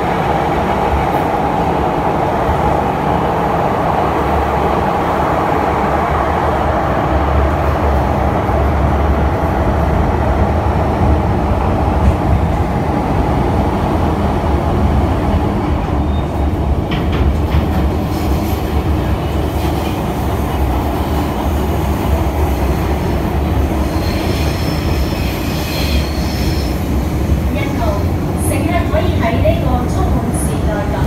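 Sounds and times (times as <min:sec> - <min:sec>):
train wheels rumbling on rail: 0:00.0 - 0:31.0
high-pitched wheel squeal: 0:23.8 - 0:26.8.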